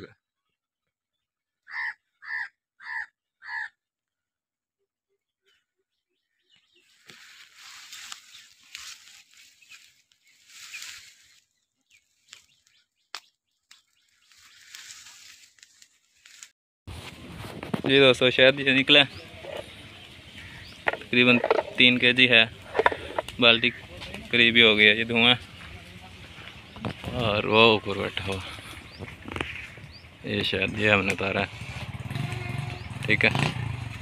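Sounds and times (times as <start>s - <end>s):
bird calling: 1.6s - 3.8s, 18.7s - 33.0s
rustling and crackling: 6.8s - 12.8s, 13.7s - 18.4s, 20.4s - 30.0s
sharp clicks: 22.6s - 23.4s.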